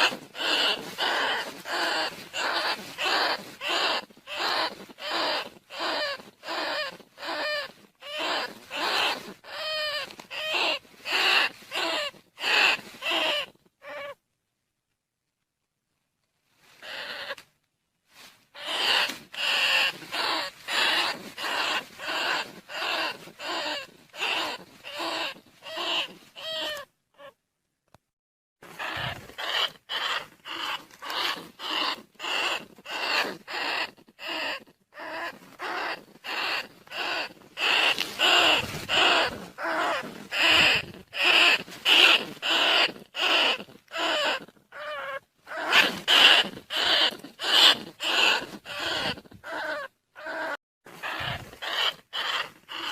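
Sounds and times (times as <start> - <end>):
squeaky rat decoy calls: 0.0 - 14.2, 16.8 - 17.4, 18.6 - 27.4, 28.7 - 52.9.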